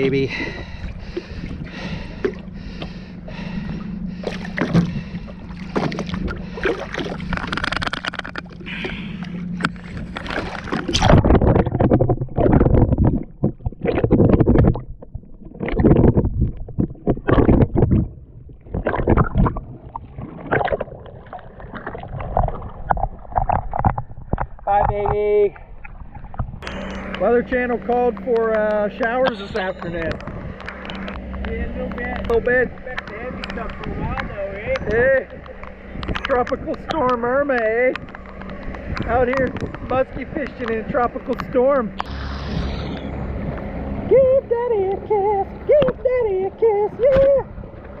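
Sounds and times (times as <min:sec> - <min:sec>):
boat motor humming: 0:00.0 - 0:48.0.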